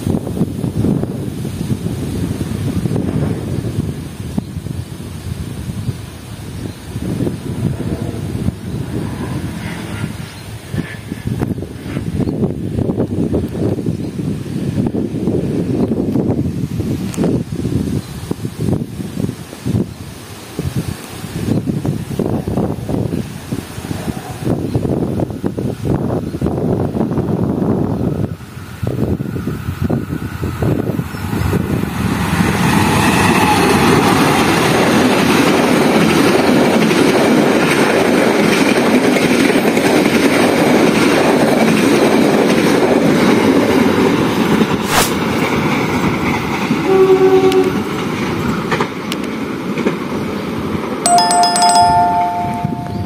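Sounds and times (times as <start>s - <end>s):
train wheels rumbling on rails: 0.0s - 51.0s
locomotive horn blasts: 46.8s - 47.8s.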